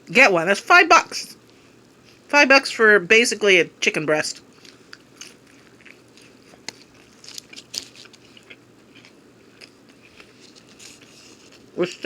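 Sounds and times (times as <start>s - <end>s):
person chewing crunchy food: 4.4s - 11.8s.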